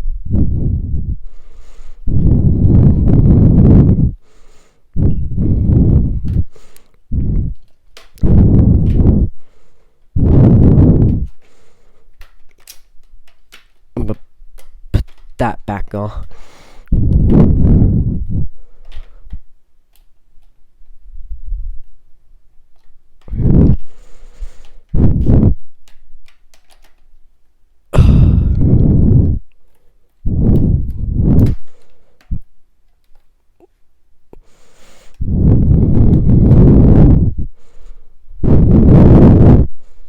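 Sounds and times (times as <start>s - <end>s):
plastic parts being handled: 11.1s - 16.5s, 25.6s - 27.4s
loud low bursts of noise: 28.0s - 29.2s.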